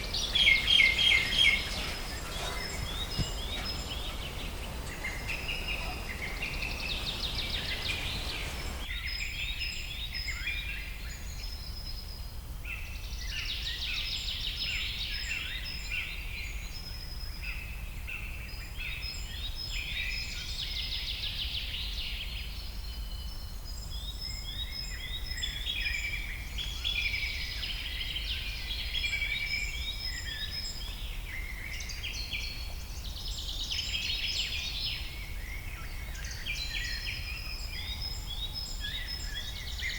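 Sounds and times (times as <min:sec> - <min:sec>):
broad hiss: 0:00.0 - 0:08.8
songbirds chirping and singing: 0:00.0 - 0:09.2.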